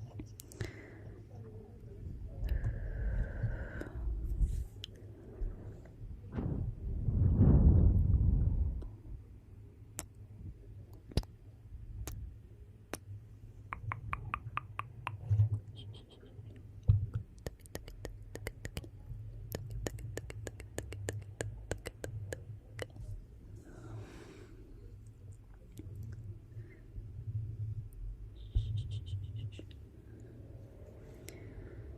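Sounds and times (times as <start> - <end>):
low rumble of flames: 5.4 - 9.3
soft low thuds: 6.2 - 8.8.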